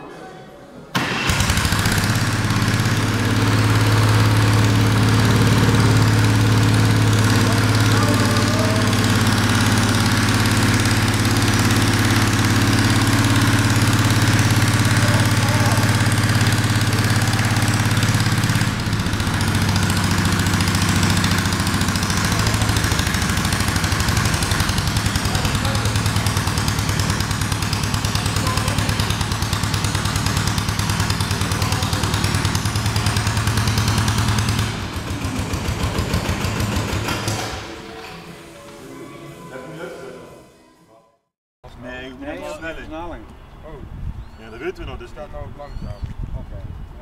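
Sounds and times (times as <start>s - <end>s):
small engine idling: 1.0s - 38.5s.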